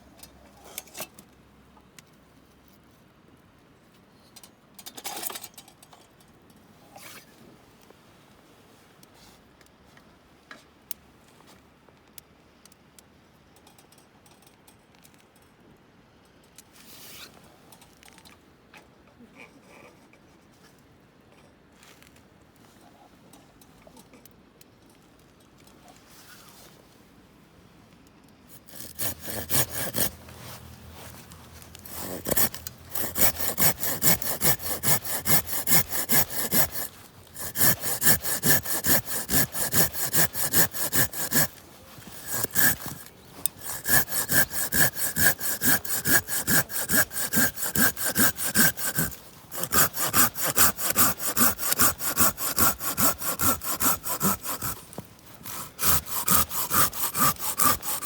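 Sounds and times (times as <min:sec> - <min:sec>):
hand saw cutting wood: 0:28.5 - 0:58.0.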